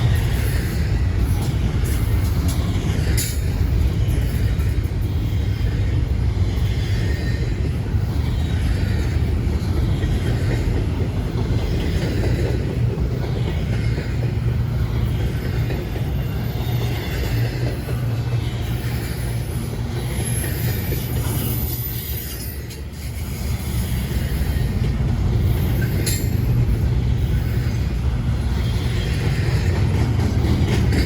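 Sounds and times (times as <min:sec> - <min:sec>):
freight train rumbling on rails: 0:00.0 - 0:31.0.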